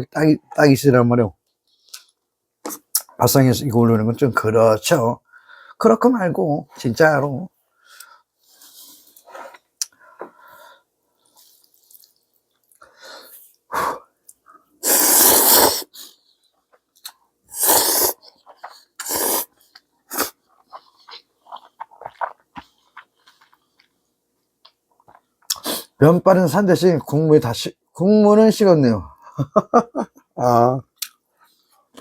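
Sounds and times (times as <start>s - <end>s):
loud slurps of noodles: 14.8s - 16.1s, 17.5s - 18.2s, 19.0s - 19.5s, 20.1s - 20.4s
chewing: 19.6s - 24.0s.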